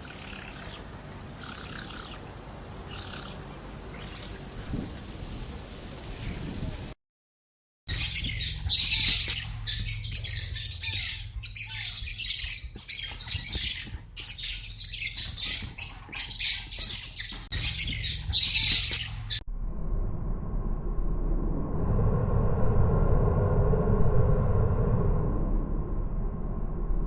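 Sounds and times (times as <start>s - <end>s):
birds squawking: 7.9s - 19.4s.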